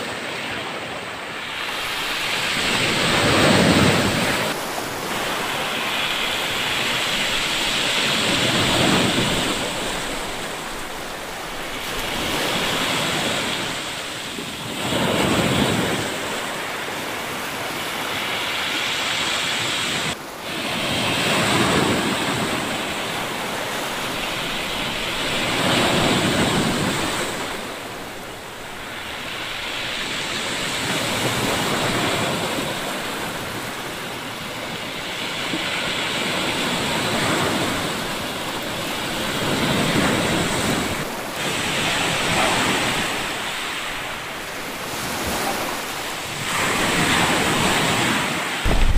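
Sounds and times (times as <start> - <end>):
waves washing up pebbly beach: 1.3 - 48.9.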